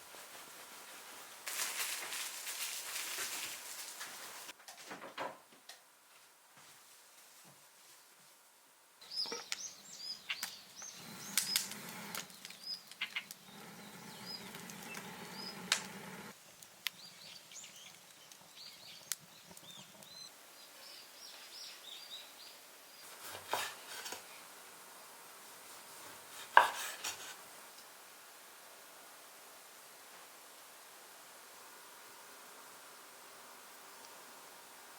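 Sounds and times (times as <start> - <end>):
rustling: 0.0 - 4.8
small birds chirping: 9.0 - 23.3.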